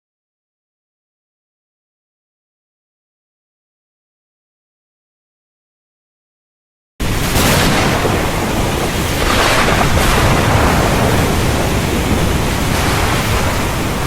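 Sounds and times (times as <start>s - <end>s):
waterfall rushing: 7.0s - 14.0s.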